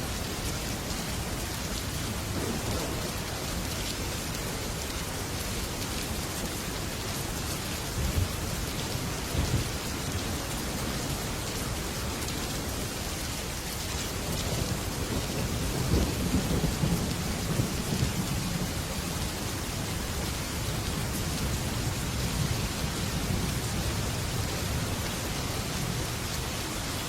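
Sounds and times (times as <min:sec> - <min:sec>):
heavy rain on metal roof: 0:00.0 - 0:27.0
thunder rumbling: 0:02.1 - 0:03.8, 0:14.2 - 0:24.9.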